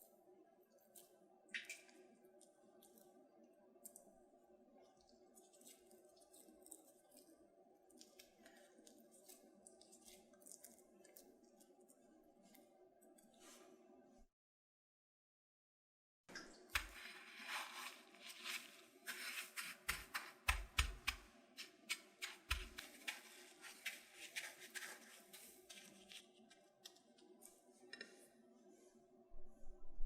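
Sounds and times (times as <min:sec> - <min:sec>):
food preparation clicks and taps: 0:19.6 - 0:28.2.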